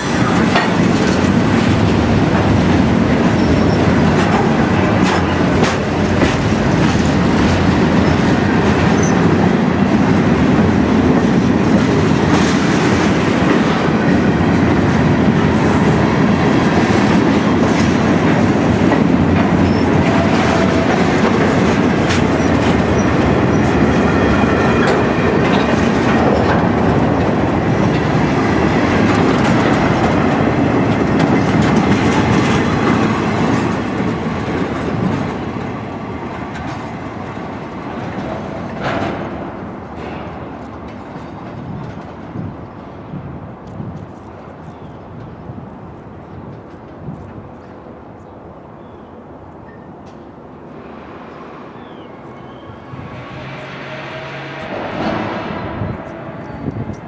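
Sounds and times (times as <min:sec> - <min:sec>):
train rolling past: 0:00.0 - 0:57.0
wheels clicking over rail joints: 0:16.2 - 0:42.5.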